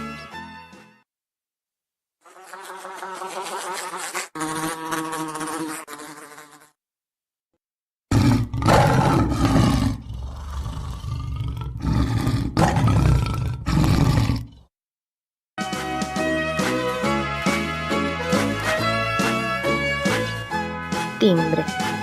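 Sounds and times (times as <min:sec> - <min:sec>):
insect buzzing: 0:02.2 - 0:06.8.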